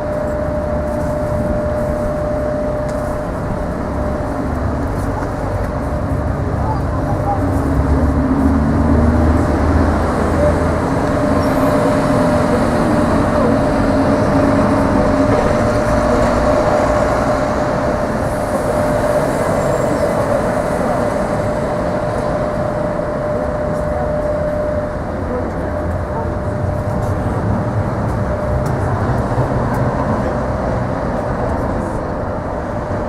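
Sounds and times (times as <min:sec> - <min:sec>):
thin steady whine: 0:00.0 - 0:06.9, 0:10.2 - 0:28.7
low hum: 0:00.0 - 0:07.3
tram rolling and traction noise: 0:00.0 - 0:33.0.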